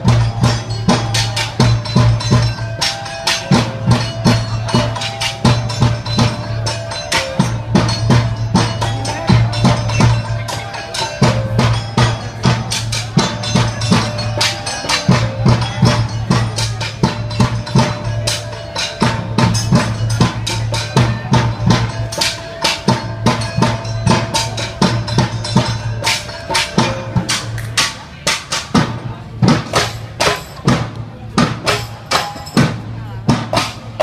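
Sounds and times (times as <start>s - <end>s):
ensemble drumming: 0.0s - 34.0s.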